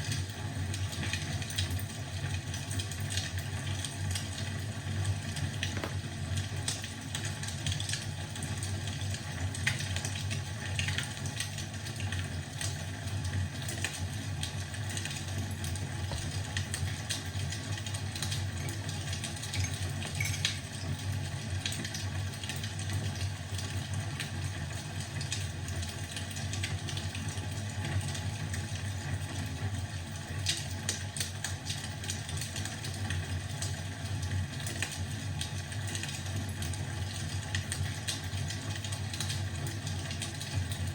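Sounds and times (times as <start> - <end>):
wood fire crackling: 13.7 - 23.6.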